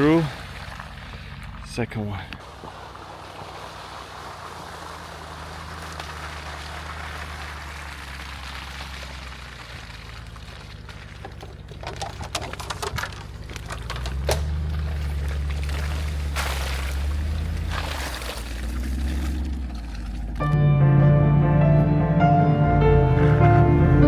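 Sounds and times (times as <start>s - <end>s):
car engine running: 0.0s - 24.0s
tyre road noise: 0.0s - 24.0s
clicks and knocks: 11.2s - 14.7s.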